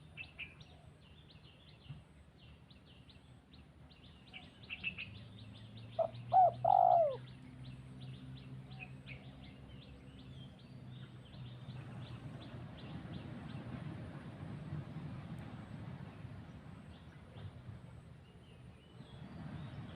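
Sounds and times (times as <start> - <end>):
dove cooing: 6.0 - 7.2.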